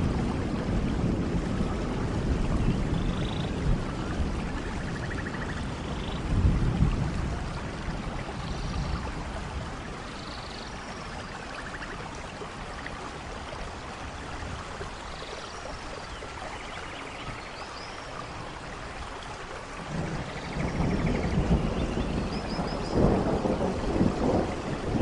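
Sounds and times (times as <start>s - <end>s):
low thunder rumble: 0.0s - 10.2s, 19.8s - 25.0s
steady rainfall: 0.0s - 25.0s.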